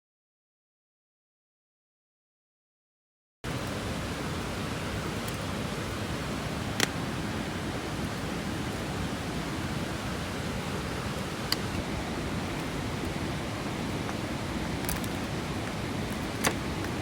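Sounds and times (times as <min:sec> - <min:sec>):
mountain stream rushing: 0:03.4 - 0:17.0.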